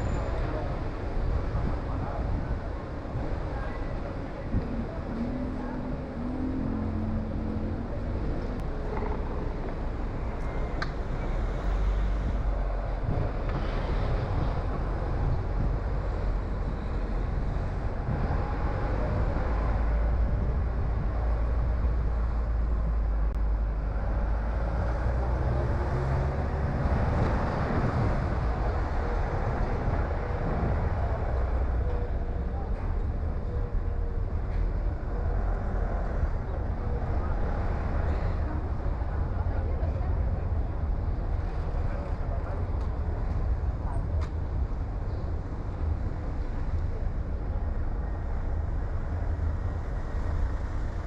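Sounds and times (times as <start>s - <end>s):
car engine and road rumble: 0.0s - 51.0s.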